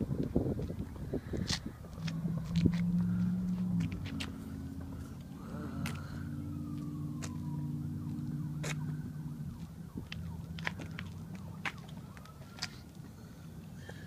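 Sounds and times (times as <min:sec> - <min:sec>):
low engine hum: 0:00.0 - 0:14.0
distant wailing siren: 0:01.8 - 0:14.0.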